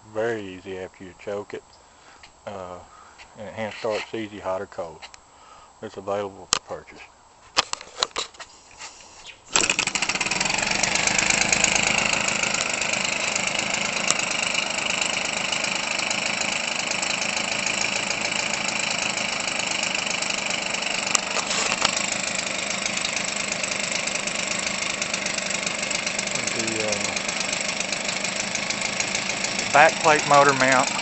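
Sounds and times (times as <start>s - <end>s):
two-stroke engine running: 9.6s - 31.0s.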